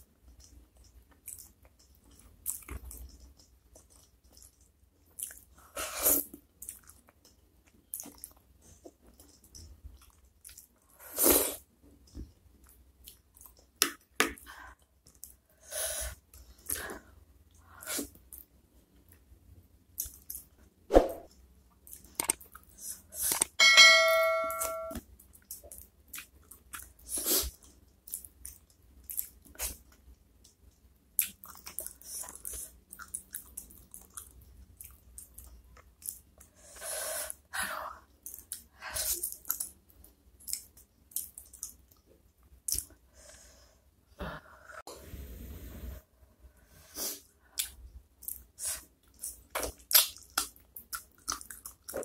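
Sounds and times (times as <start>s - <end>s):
ringing bell-like chime: 23.6s - 25.0s
chewing and sucking: 47.5s - 52.0s.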